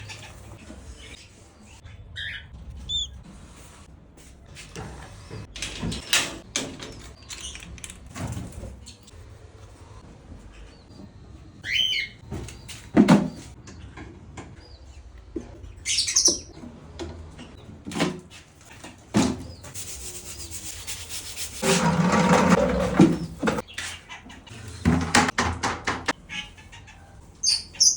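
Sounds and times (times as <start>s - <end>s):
scattered clicks and knocks: 24.9s - 26.2s.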